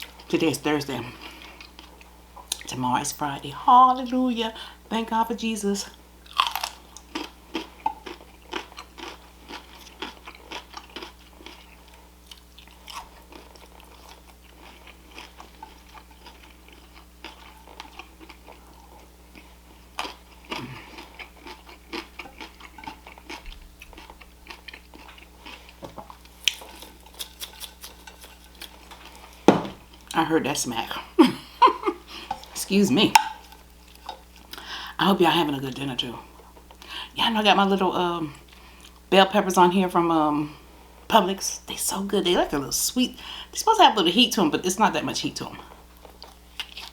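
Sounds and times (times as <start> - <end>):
person chewing and crunching food: 0.0 - 2.8, 5.9 - 35.4, 38.4 - 39.1, 45.5 - 46.9
wet mouth clicks and smacks: 26.5 - 28.2.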